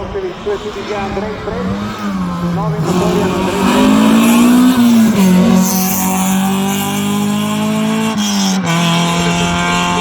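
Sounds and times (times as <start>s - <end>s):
race car engine at high revs: 0.0s - 10.0s.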